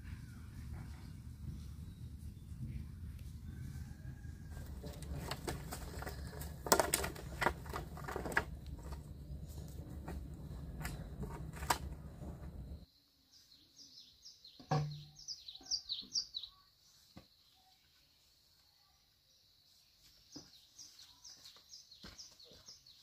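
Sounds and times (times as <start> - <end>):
low steady rumble: 0.0 - 12.8
small bird chirping: 13.3 - 23.0.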